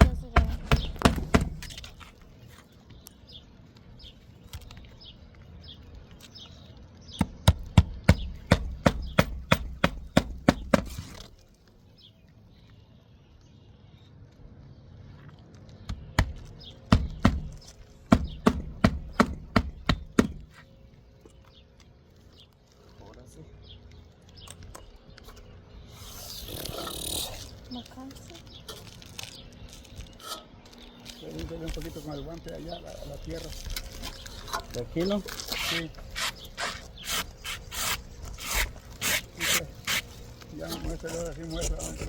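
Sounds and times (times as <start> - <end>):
hammer driving nails into shingles: 0.0 - 1.8, 7.2 - 11.2, 15.9 - 20.5.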